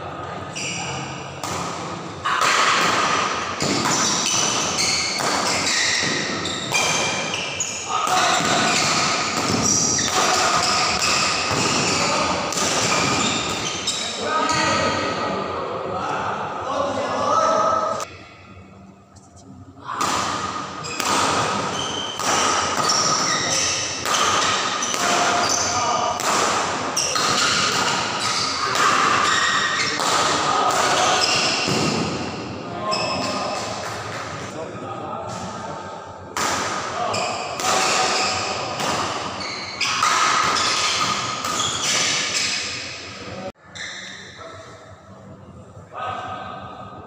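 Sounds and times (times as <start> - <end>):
rackets hitting shuttlecock: 1.4 - 13.8, 20.0 - 25.6, 26.2 - 32.2
shoes squeaking on court: 3.6 - 12.1, 12.8 - 14.2, 20.8 - 25.8, 39.3 - 42.8.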